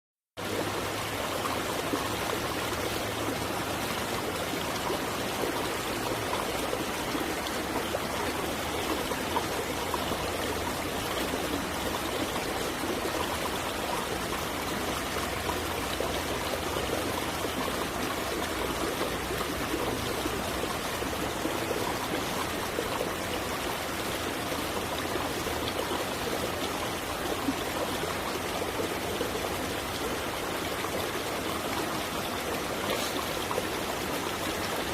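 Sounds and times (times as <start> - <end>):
stream flowing: 0.4 - 34.9.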